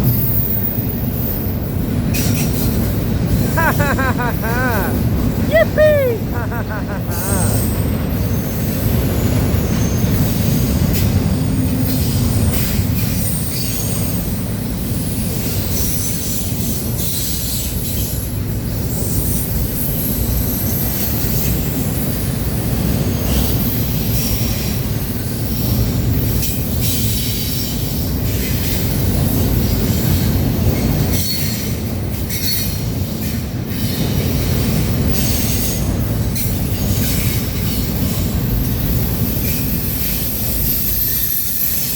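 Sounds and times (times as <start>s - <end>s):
clickety-clack over rail joints: 0.0s - 3.4s, 7.6s - 41.9s
train wheels rumbling on rail: 0.0s - 5.5s, 6.2s - 41.9s.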